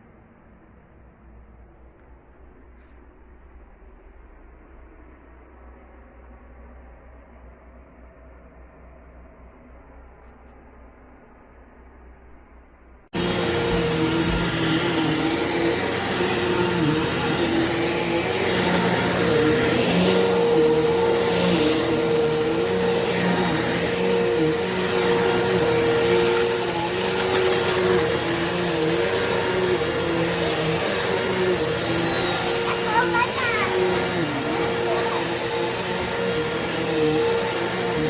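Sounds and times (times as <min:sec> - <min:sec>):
vacuum cleaner running: 0:13.2 - 0:38.0.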